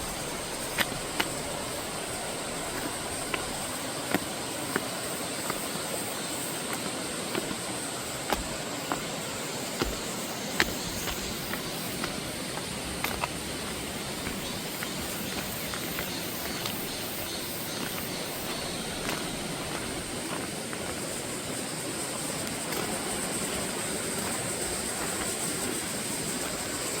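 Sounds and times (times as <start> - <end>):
cicadas droning: 0.0 - 27.0
stream rushing: 0.0 - 27.0.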